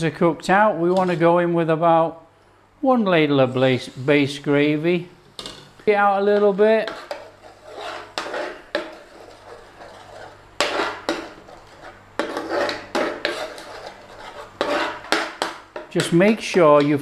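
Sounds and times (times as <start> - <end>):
metal utensil scraping a pan: 5.3 - 17.0.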